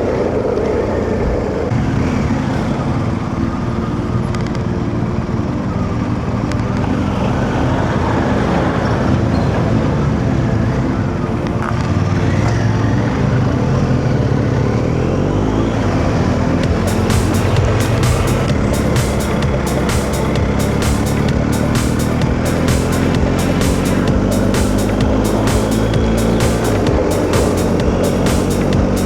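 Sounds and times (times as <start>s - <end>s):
road noise: 0.0s - 29.0s
motorcycle engine running: 11.6s - 29.0s.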